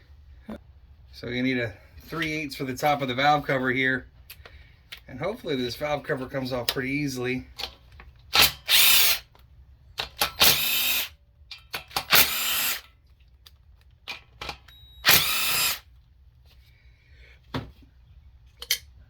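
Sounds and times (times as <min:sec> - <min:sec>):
power drill spinning: 0:08.4 - 0:09.3, 0:10.4 - 0:11.1, 0:12.0 - 0:12.9, 0:14.4 - 0:15.9.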